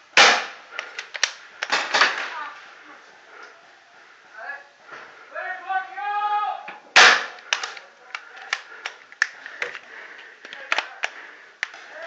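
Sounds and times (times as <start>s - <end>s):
paintball markers firing: 7.0s - 11.9s.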